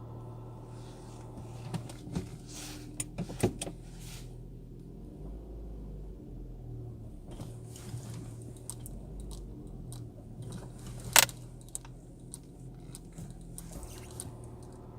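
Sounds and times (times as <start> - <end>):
car engine idling: 0.0 - 14.9
sharp click: 11.1 - 11.3.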